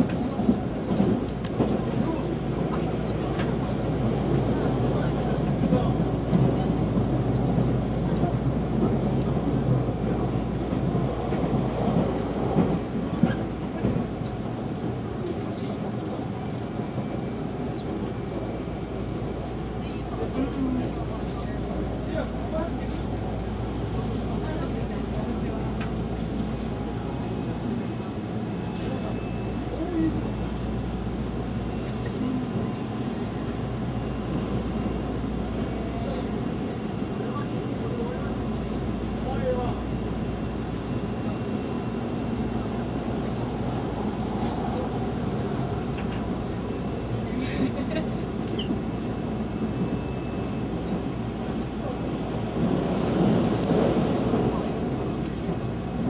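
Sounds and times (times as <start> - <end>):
electric train rumble onboard: 0.0 - 56.0.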